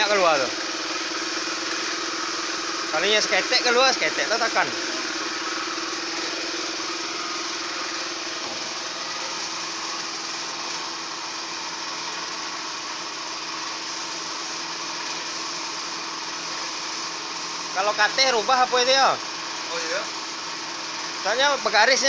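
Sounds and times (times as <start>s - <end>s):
motor humming: 0.0s - 19.0s
hiss of spraying air: 1.0s - 5.4s, 9.0s - 10.6s, 13.8s - 17.8s.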